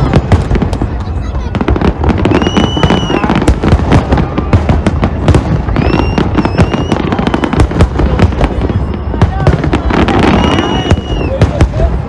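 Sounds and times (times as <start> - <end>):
fireworks bangs and crackling: 0.0 - 12.0
high whistle: 2.3 - 3.4, 5.7 - 7.6, 10.2 - 11.4.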